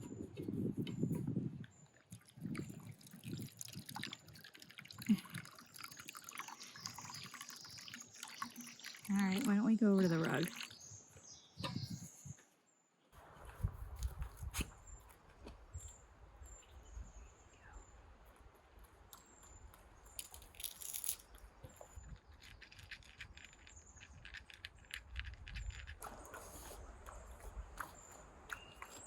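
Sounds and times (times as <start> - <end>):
small sharp clicks and rattles: 19.1 - 26.3.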